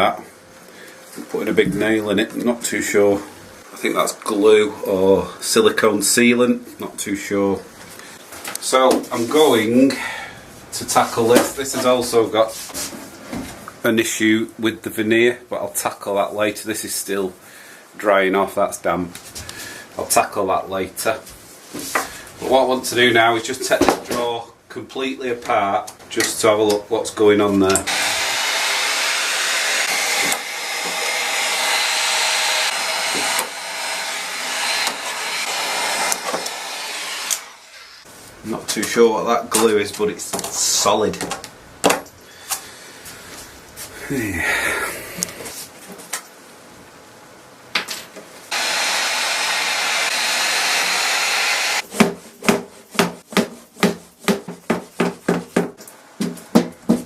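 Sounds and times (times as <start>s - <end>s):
heat gun blowing: 27.9s - 38.1s, 48.5s - 51.9s
sharp knocks on wood: 52.0s - 57.0s.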